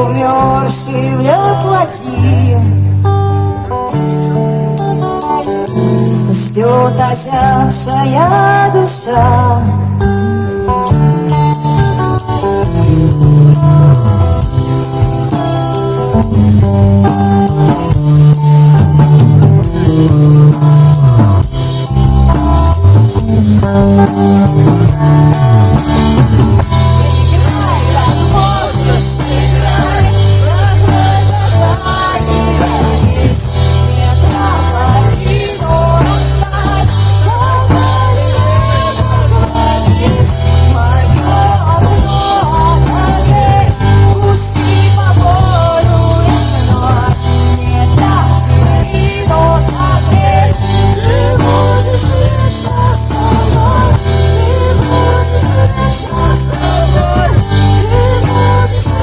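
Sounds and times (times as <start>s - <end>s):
pop-rock band playing: 0.0s - 59.0s
steady bass line: 0.0s - 59.0s.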